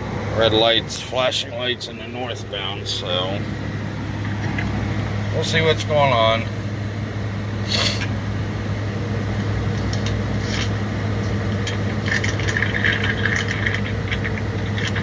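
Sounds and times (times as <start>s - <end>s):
truck diesel engine hum: 0.0s - 15.0s
cab rattles and clicks: 9.8s - 15.0s.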